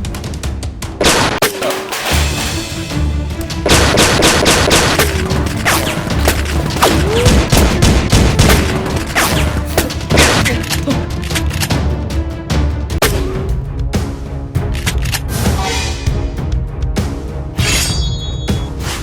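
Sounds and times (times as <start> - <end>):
action music with pulsing bass: 0.0 - 19.0
rapid gunfire: 1.0 - 2.3, 3.6 - 10.6.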